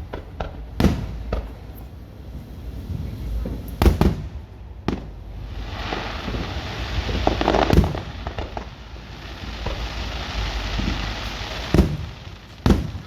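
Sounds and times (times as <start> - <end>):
loud firework bangs: 0.0 - 1.7, 3.4 - 13.0
small firework pops: 0.0 - 1.9, 3.4 - 5.1, 5.7 - 13.0
fireworks hissing crackle: 5.1 - 13.0.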